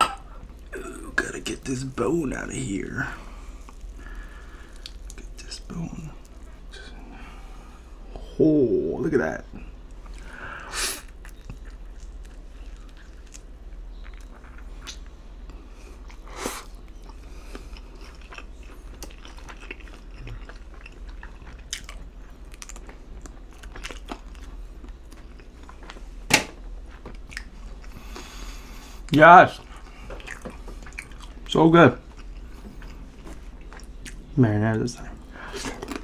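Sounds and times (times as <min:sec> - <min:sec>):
wet chewing: 0:03.5 - 0:06.5, 0:11.0 - 0:26.0, 0:26.8 - 0:28.6, 0:29.6 - 0:34.3, 0:35.2 - 0:36.0.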